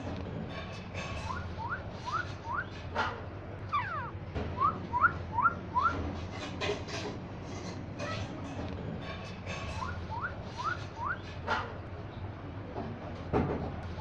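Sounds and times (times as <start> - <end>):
parrot whistling: 1.2 - 2.8, 3.7 - 6.0, 9.8 - 11.3.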